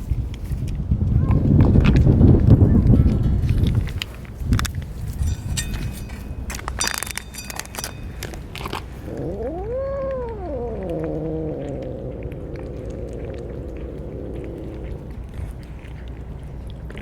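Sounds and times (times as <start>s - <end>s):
light clicks and rattles: 2.8s - 9.0s
cat meowing: 8.9s - 15.4s.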